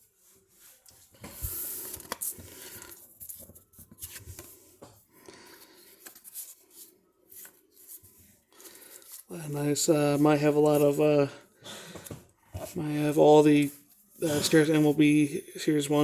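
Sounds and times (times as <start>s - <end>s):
cards rustling and sliding: 0.8s - 9.3s.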